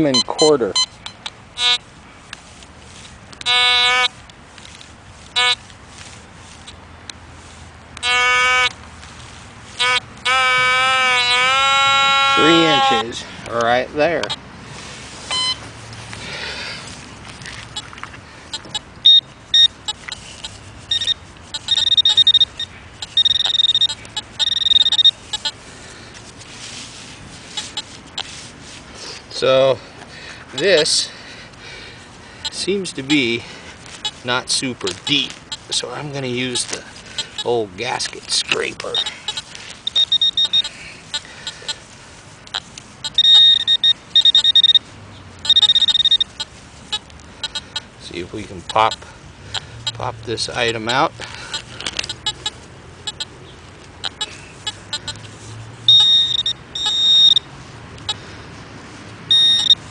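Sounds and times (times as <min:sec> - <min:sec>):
metal detector beeping: 0:00.0 - 0:01.8, 0:03.4 - 0:04.2, 0:05.3 - 0:05.6, 0:08.0 - 0:08.7, 0:09.8 - 0:13.2, 0:14.2 - 0:14.4, 0:15.3 - 0:15.7, 0:18.5 - 0:25.6, 0:27.5 - 0:28.3, 0:30.5 - 0:31.0, 0:32.4 - 0:41.8, 0:42.4 - 0:53.4, 0:54.0 - 0:58.2, 0:59.3 - 0:59.9.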